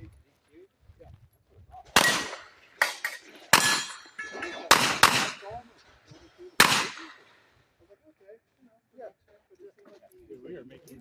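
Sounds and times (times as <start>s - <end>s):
gunshots: 2.0s - 5.6s, 6.6s - 7.3s.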